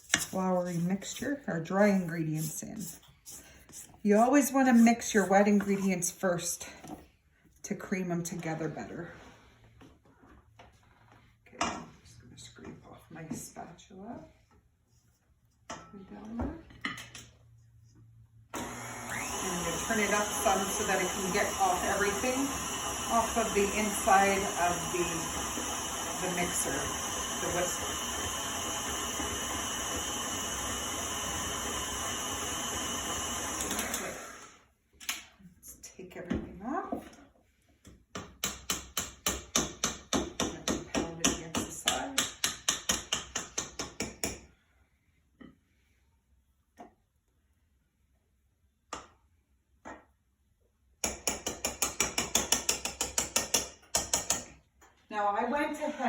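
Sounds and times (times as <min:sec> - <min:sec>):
electric stand mixer running: 0:18.6 - 0:34.6.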